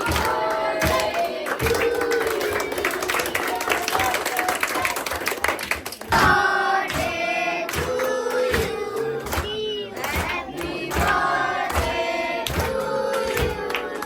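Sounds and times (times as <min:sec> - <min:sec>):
voices singing in chorus: 0:00.0 - 0:14.0
regular beat: 0:06.0 - 0:14.0.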